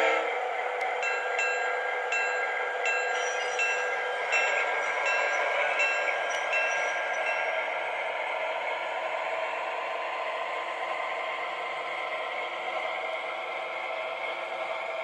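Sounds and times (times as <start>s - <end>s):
model train running: 0.0s - 15.0s
electronic locomotive bell ringing: 1.0s - 7.7s.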